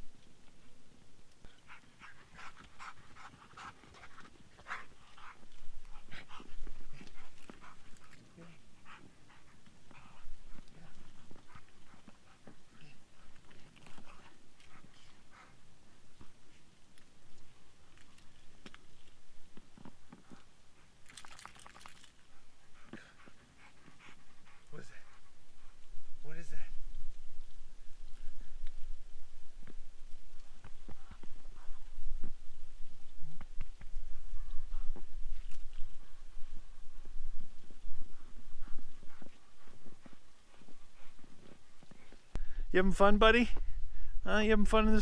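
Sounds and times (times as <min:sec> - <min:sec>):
dog panting: 0:01.5 - 0:18.3, 0:20.1 - 0:26.3, 0:33.3 - 0:42.4.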